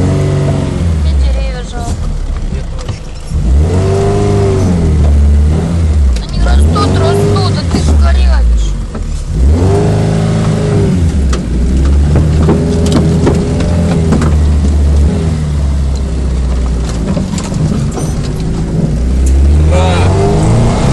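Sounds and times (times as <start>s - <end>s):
car engine under load: 0.0s - 20.9s
short knocks and clatters: 10.7s - 15.2s, 16.3s - 19.5s.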